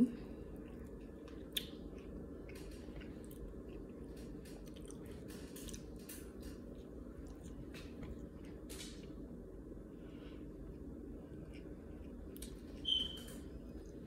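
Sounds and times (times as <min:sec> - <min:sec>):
person chewing: 0:00.2 - 0:08.6, 0:10.7 - 0:12.8.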